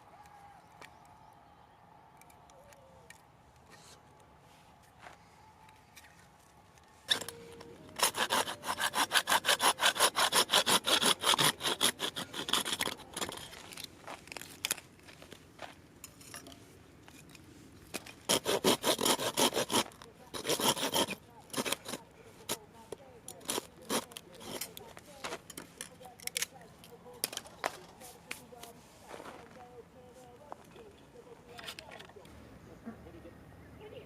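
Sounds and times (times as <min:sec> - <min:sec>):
hand saw cutting wood: 0:07.1 - 0:13.9, 0:18.0 - 0:26.5.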